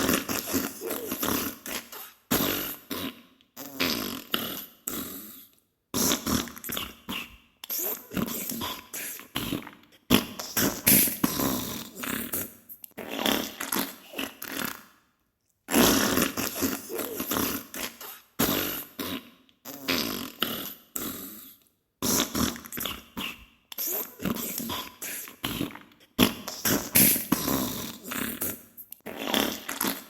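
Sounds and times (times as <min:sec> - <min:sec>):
sputtering farts: 0:00.0 - 0:05.2, 0:09.4 - 0:14.9, 0:15.7 - 0:20.8, 0:25.5 - 0:30.0.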